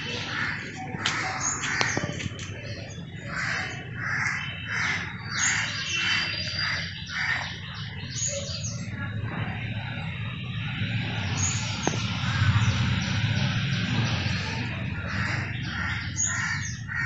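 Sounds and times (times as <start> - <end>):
steady low hum: 6.6 - 17.0.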